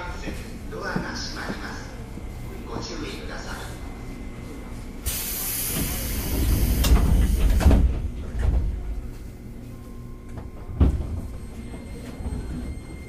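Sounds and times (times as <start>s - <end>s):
air hiss of train doors: 5.0s - 7.9s
train doors thudding shut: 5.1s - 9.0s, 10.4s - 12.8s.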